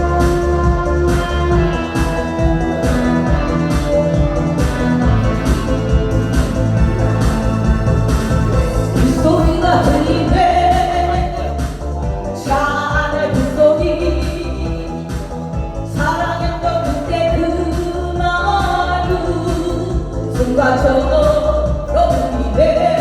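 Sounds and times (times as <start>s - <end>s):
backing track with bass beat: 0.0s - 23.0s
person singing pop song: 0.0s - 23.0s.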